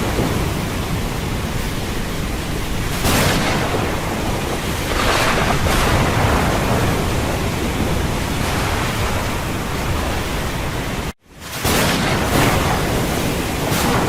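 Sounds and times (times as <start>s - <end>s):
storm wind rushing: 0.0s - 11.2s
waves breaking: 0.0s - 14.0s.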